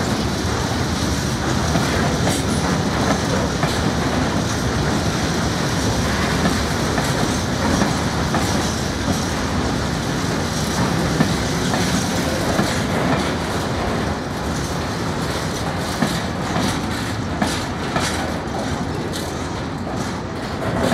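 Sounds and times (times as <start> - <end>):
train wheels clicking over rail joints: 0.0 - 20.9.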